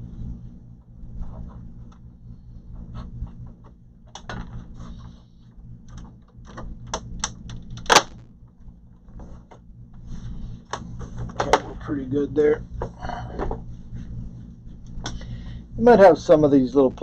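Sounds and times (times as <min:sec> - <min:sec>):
sharp loud plastic snap: 0:07.2 - 0:08.2.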